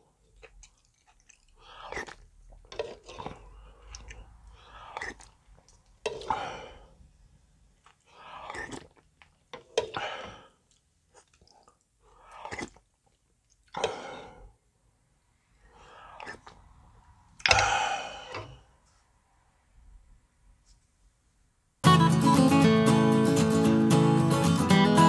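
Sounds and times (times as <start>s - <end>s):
person chewing: 0.0s - 6.9s, 7.7s - 14.3s, 15.6s - 16.7s.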